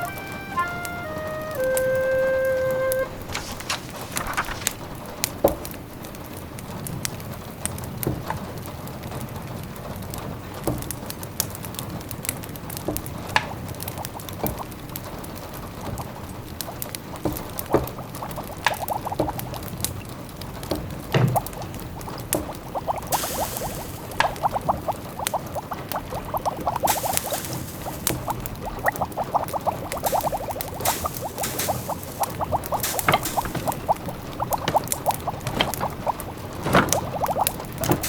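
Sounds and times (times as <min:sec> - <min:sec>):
wood fire crackling: 0:00.6 - 0:38.0
pot simmering bubbling: 0:13.1 - 0:38.0.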